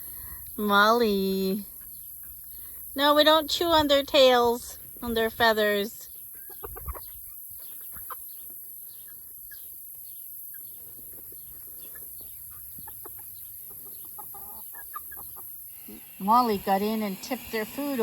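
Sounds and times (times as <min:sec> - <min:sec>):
chickens clucking: 0:04.5 - 0:18.0
insects hissing: 0:14.9 - 0:18.0.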